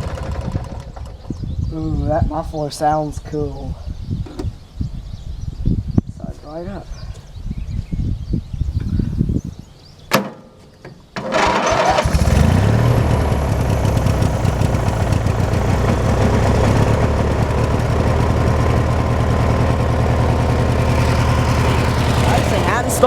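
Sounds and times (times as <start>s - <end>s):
lawn tractor engine cranking: 0.0s - 1.3s, 11.0s - 23.0s
lawn tractor engine running: 0.0s - 1.3s, 11.1s - 23.0s.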